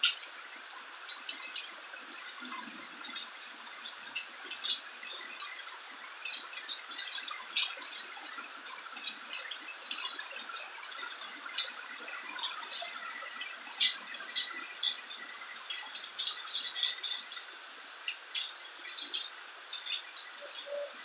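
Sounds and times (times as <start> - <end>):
drips and splats: 0.0 - 21.0.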